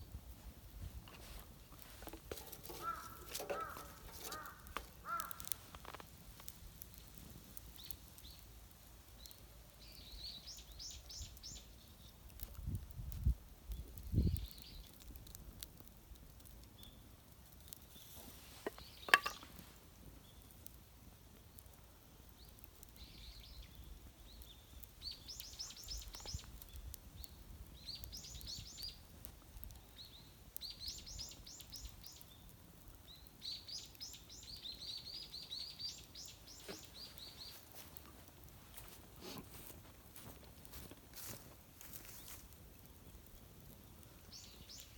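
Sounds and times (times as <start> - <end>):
birds chirping: 2.0 - 5.6.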